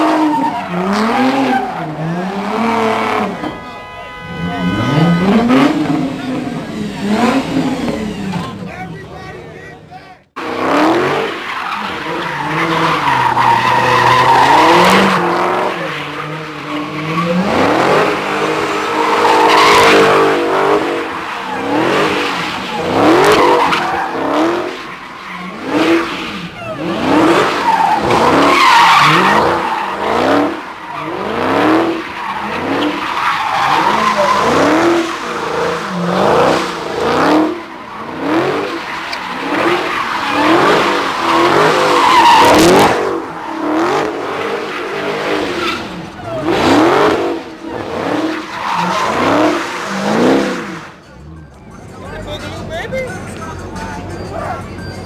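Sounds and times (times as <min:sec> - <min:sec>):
car engine revving: 0:00.0 - 0:55.0
tyres squealing: 0:11.4 - 0:50.9.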